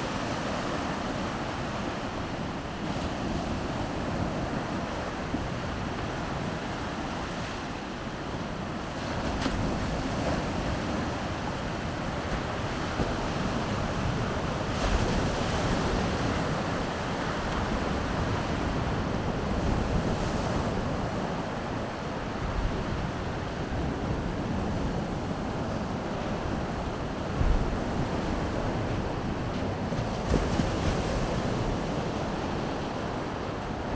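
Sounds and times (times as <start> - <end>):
waves breaking on shore: 0.0 - 33.9
wind buffeting microphone: 8.1 - 33.9.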